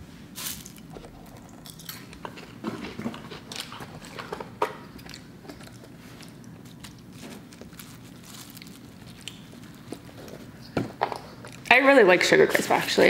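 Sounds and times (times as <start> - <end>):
crunchy chewing of cereal: 0.4 - 10.5.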